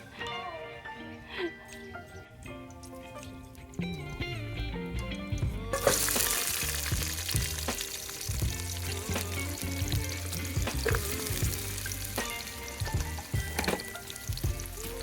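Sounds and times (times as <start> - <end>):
food frying in hot oil: 5.7 - 15.0.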